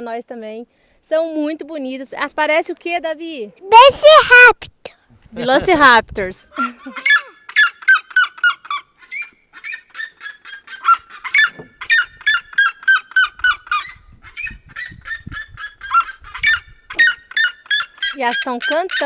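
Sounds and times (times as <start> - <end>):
birds yelping calls: 6.5 - 19.0.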